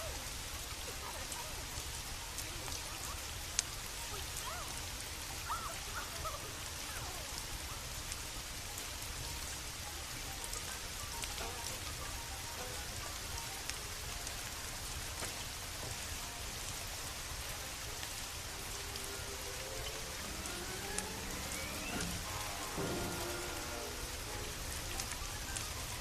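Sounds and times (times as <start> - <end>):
steady rain: 0.0 - 26.0
sharp ticks of drops: 14.9 - 26.0
rising pitched tone: 18.3 - 26.0.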